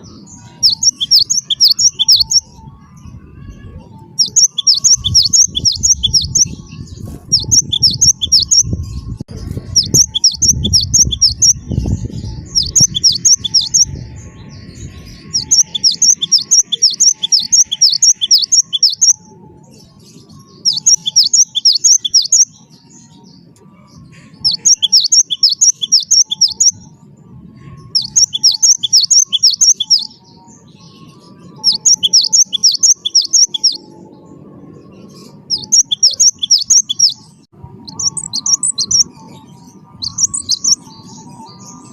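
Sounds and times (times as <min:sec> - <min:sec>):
bird singing rapid high notes: 0:00.0 - 0:34.2, 0:34.8 - 0:41.9
low rumble: 0:05.0 - 0:15.4.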